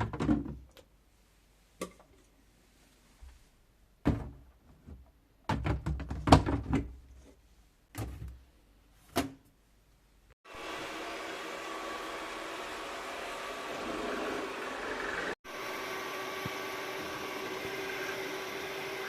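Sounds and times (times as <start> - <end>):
household knocks and clatter: 0.0 - 0.7, 4.0 - 7.0
appliance motor humming: 10.5 - 19.0.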